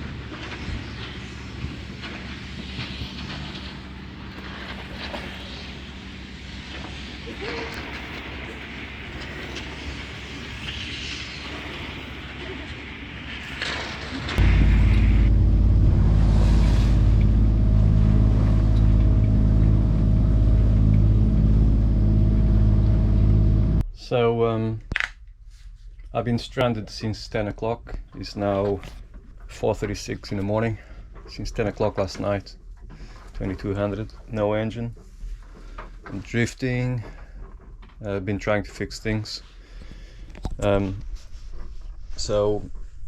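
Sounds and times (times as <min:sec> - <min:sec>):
steady hiss: 0:00.0 - 0:20.5
boat engine droning: 0:00.0 - 0:23.8.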